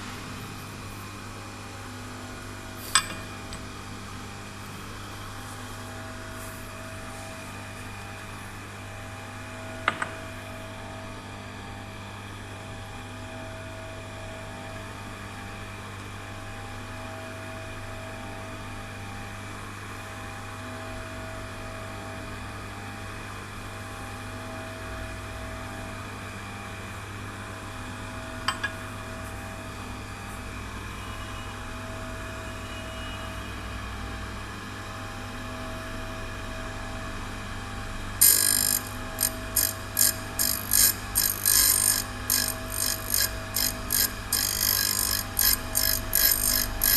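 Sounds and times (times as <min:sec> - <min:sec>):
grinder humming: 0:38.2 - 0:46.9.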